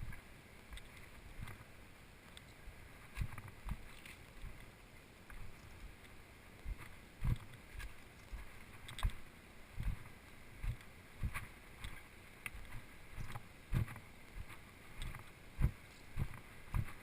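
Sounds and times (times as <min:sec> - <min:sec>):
faint steady hiss: 0:00.0 - 0:17.0
footsteps on rocky dirt trail: 0:03.0 - 0:04.7, 0:05.3 - 0:17.0.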